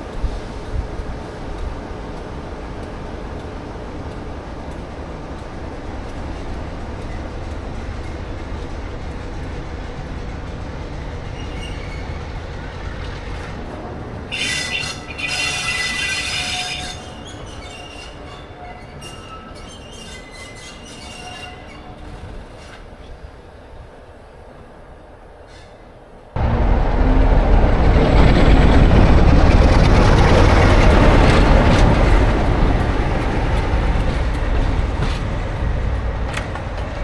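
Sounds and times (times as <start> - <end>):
diesel train rumble: 0.0 - 37.0
high-pitched wheel squeal: 14.3 - 22.0.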